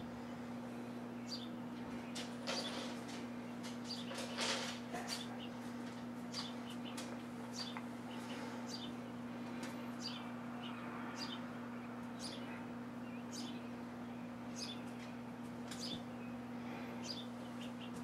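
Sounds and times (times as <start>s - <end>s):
sparrows chirping: 0.0s - 18.0s
steady low hum: 0.0s - 18.0s.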